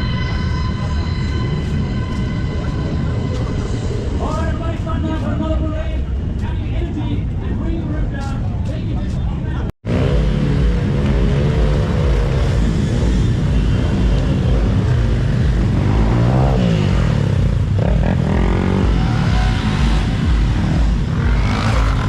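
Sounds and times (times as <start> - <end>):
motorcycle engine revving: 9.8 - 22.0
motorcycle engines running: 9.8 - 22.0.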